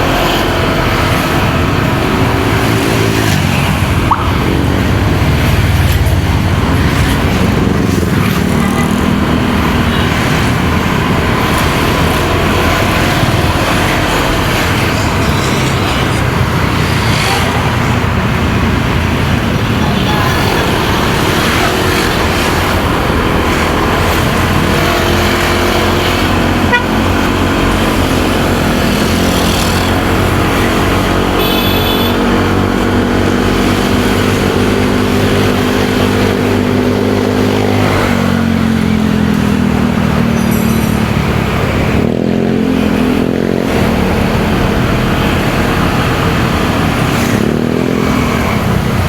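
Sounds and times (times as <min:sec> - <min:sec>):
motorcycle engine running: 0:00.0 - 0:49.0
road and wind noise: 0:00.0 - 0:49.0
vehicle horn tooting: 0:26.6 - 0:27.2, 0:31.4 - 0:32.3.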